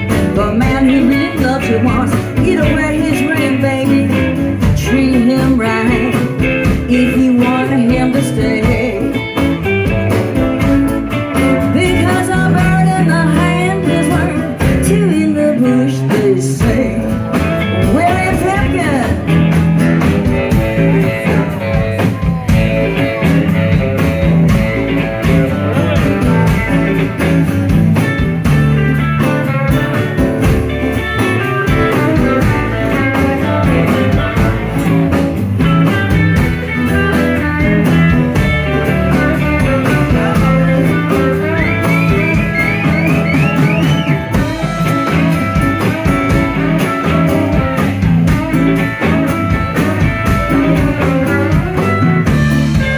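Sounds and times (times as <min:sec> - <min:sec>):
lead guitar bent notes: 0:00.0 - 0:52.9
live blues band playing: 0:00.0 - 0:52.9.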